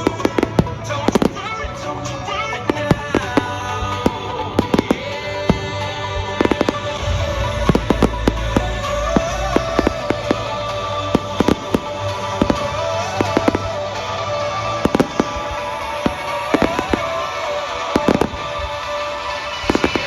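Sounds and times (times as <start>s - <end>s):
fireworks bangs and crackling: 0.0s - 20.0s
music over sound system: 0.0s - 20.0s
low rumble: 3.9s - 17.4s.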